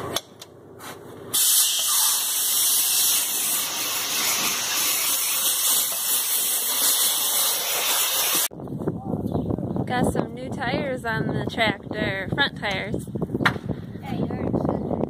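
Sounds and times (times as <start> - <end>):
compressed air hissing: 1.3 - 8.5.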